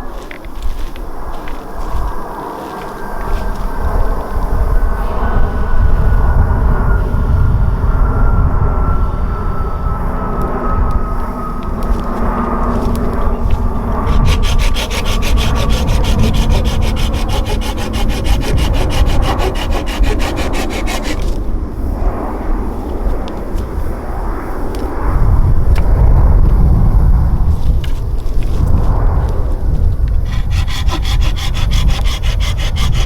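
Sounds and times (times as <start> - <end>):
saw rasping through wood: 13.7 - 21.5, 30.2 - 33.0.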